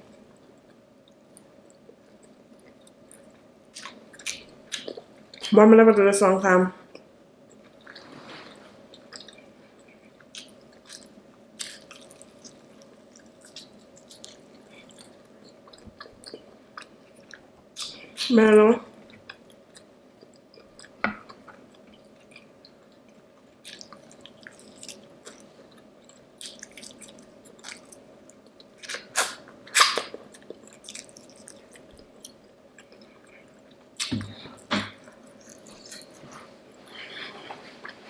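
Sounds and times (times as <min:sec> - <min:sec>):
person chewing with wet mouth sounds: 0:06.9 - 0:18.3, 0:19.0 - 0:38.0.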